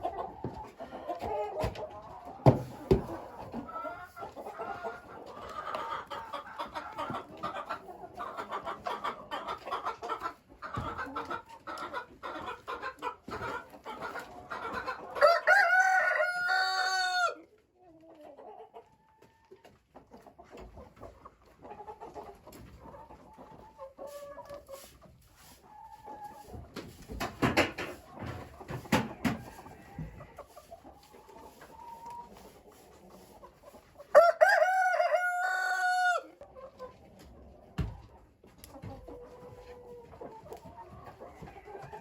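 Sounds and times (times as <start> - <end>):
chickens clucking: 0.0 - 42.0
rooster crowing: 15.2 - 17.4, 34.1 - 36.3.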